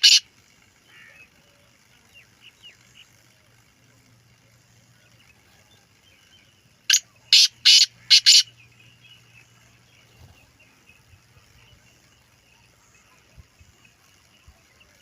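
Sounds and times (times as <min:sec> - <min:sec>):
francolin harsh grating calls: 0:00.0 - 0:01.4, 0:06.9 - 0:08.6.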